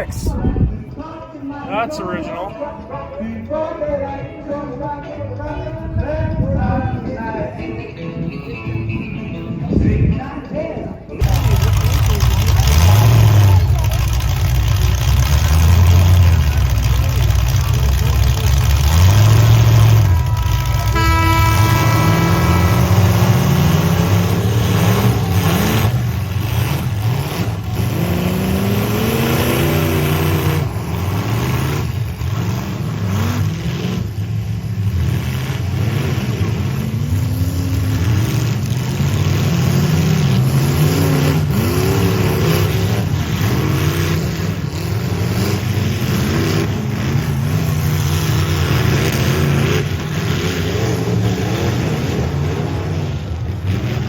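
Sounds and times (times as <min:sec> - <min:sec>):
car engines revving: 0:00.0 - 0:02.5, 0:11.2 - 0:54.0
low engine drone: 0:11.2 - 0:34.5.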